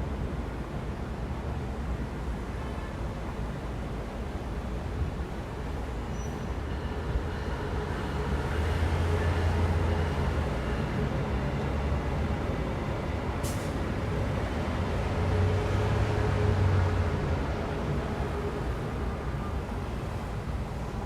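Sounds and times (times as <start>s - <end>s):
street traffic: 0.0s - 21.0s
short hiss: 13.4s - 13.8s.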